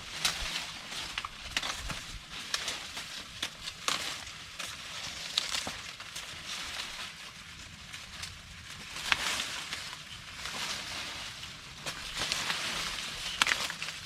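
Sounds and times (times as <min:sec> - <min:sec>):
dry corn leaves rustling: 0:00.0 - 0:14.0.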